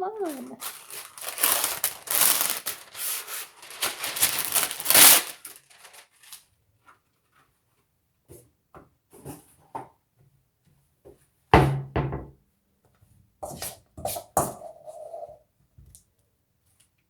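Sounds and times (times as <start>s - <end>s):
packaging crinkling and tearing: 0.2s - 6.5s.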